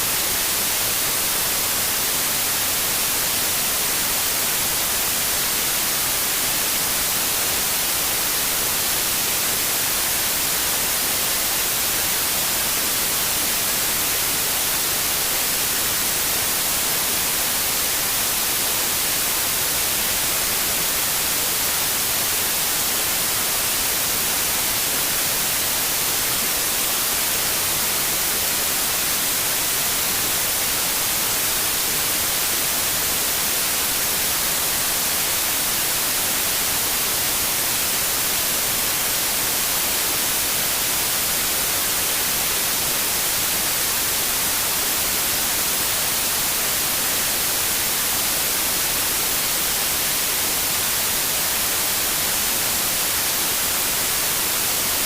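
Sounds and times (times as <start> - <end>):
steady white noise hiss: 0.0 - 55.0.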